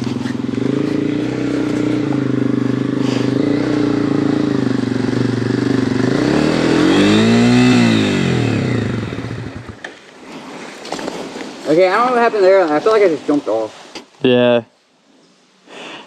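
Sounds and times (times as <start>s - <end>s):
dirt bike engine revving: 0.0s - 9.8s.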